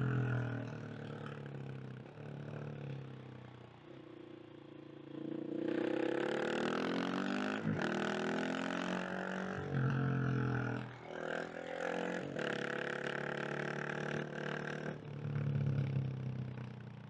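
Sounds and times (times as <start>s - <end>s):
motorcycle engine revving: 5.0s - 17.0s.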